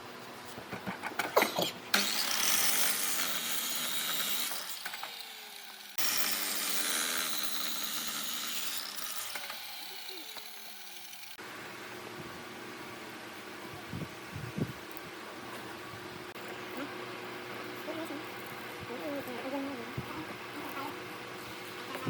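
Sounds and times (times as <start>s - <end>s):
power tool cutting wood: 1.4s - 11.4s.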